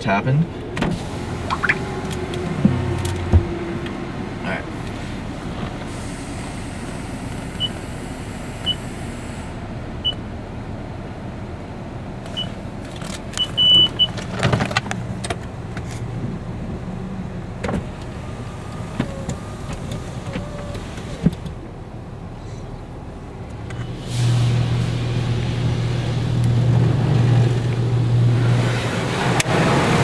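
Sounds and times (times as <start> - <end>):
car engine and road rumble: 0.0 - 30.0
short high beeps: 1.5 - 1.8.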